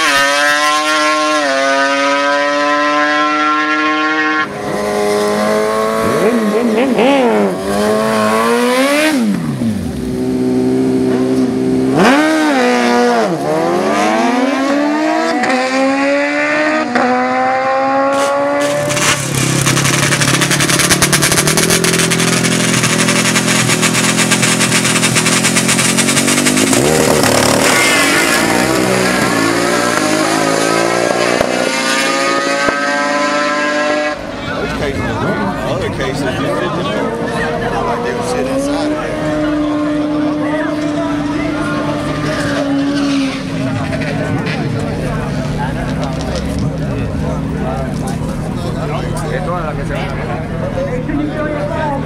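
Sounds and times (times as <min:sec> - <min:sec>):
racing engines revving: 0:00.0 - 0:52.0
rough engine note: 0:18.1 - 0:52.0.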